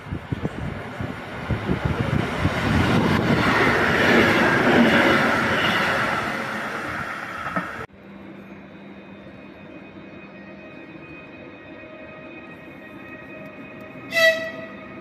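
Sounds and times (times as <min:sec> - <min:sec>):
rush of passing train: 0:00.0 - 0:15.0.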